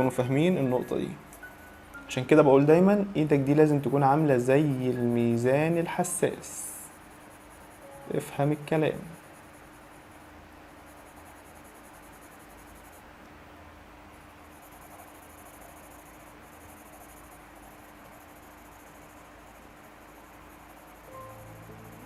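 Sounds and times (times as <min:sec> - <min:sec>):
background music: 0:00.0 - 0:05.2, 0:07.8 - 0:09.1, 0:21.1 - 0:22.0.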